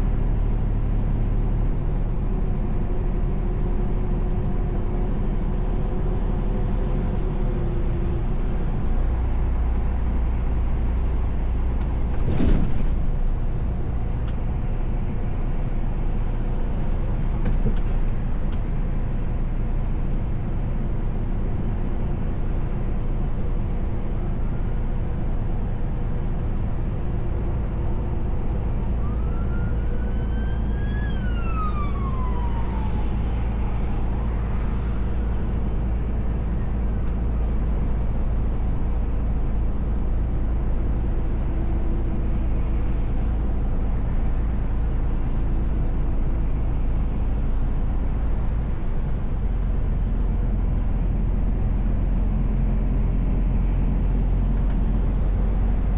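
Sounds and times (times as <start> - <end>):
truck engine drone: 0.0 - 55.9
siren rising and falling: 29.0 - 34.4.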